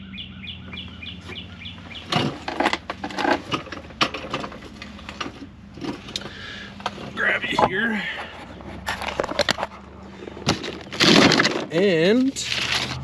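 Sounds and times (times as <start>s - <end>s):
bird chirping: 0.0s - 2.3s
metal brackets and bolts clattering: 2.0s - 7.2s, 8.7s - 13.0s.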